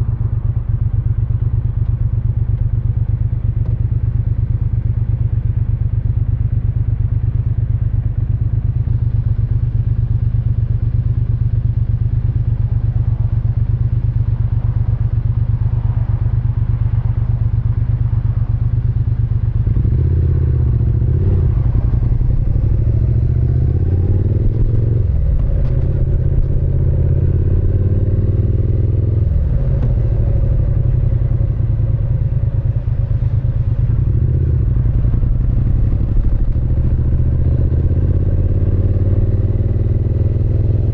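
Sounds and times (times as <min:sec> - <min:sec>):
motorcycle engine accelerating: 0:08.9 - 0:40.9.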